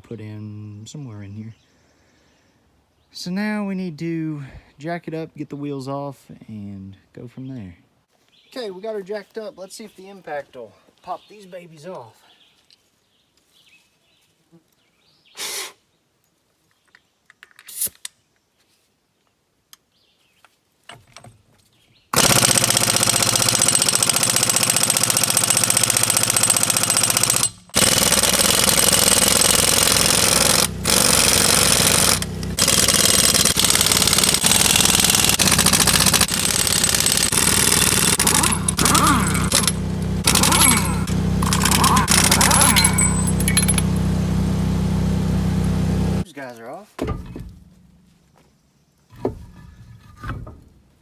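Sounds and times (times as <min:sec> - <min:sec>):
impact wrench hammering: 0:22.2 - 0:46.2, 0:47.0 - 0:48.1.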